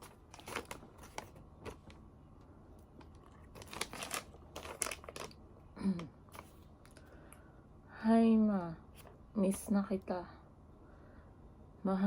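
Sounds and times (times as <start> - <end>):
packaging crinkling: 0.0 - 2.0, 2.8 - 7.2.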